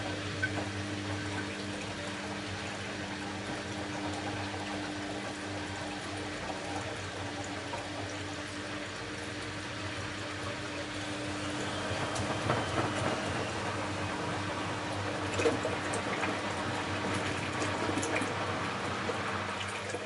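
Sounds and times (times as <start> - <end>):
washing machine water running: 0.0 - 20.0.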